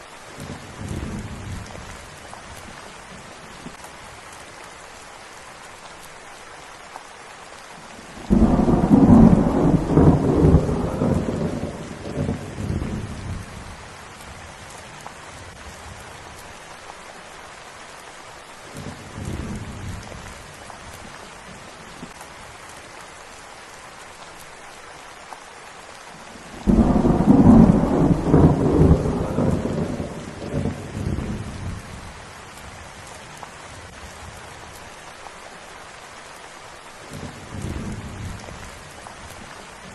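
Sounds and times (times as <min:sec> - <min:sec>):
steady rain: 0:00.0 - 0:39.9
rolling thunder: 0:08.2 - 0:13.7, 0:26.6 - 0:32.0.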